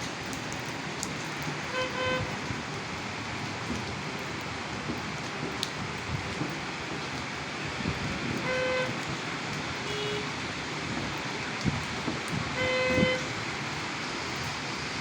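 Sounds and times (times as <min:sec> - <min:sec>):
heavy rain: 0:00.0 - 0:15.0
car horn honking: 0:01.7 - 0:02.2, 0:08.4 - 0:08.9, 0:09.9 - 0:10.2, 0:12.6 - 0:13.3.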